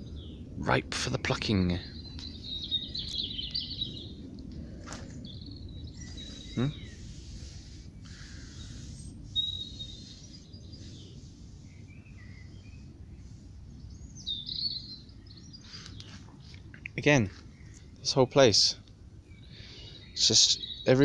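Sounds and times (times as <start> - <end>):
birds chirping and whistling: 0.0 - 0.6, 1.4 - 18.2, 19.2 - 21.0
low background rumble: 0.0 - 21.0.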